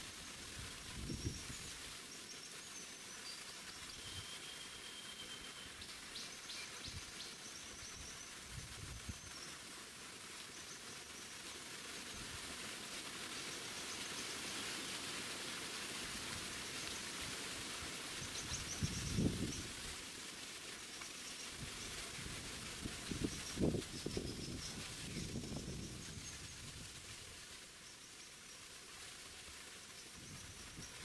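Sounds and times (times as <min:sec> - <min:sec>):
steady outdoor hiss: 0:00.0 - 0:31.0
songbird high chirps: 0:03.2 - 0:08.2.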